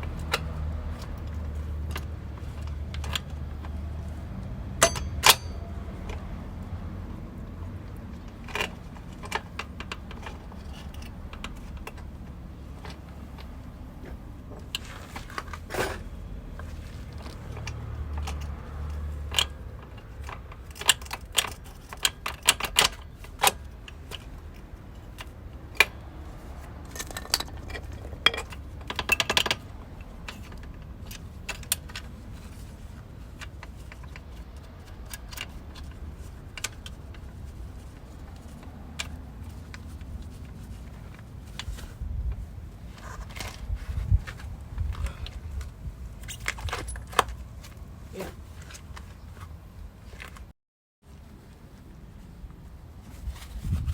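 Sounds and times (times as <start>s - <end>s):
metal tools clinking: 4.8s - 5.7s.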